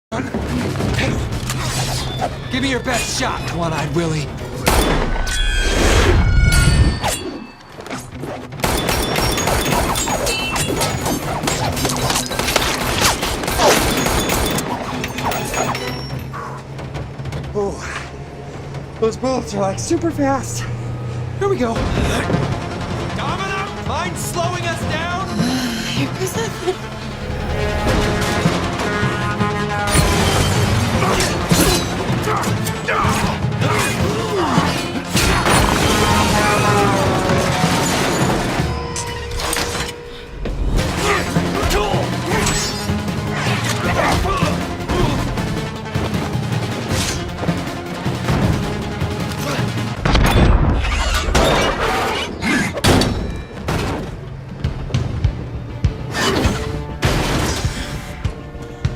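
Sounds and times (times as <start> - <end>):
film score: 0.1 - 58.9
soundtrack music: 0.1 - 58.9
sliding squeals: 1.5 - 3.6, 5.2 - 8.2, 36.6 - 40.4
gunshots: 8.6 - 15.0, 27.7 - 38.7.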